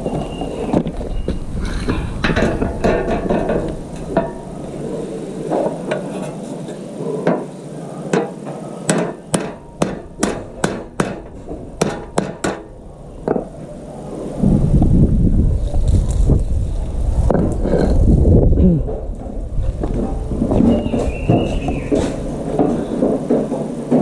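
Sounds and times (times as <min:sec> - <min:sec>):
sharp knocks: 0:08.1 - 0:12.7.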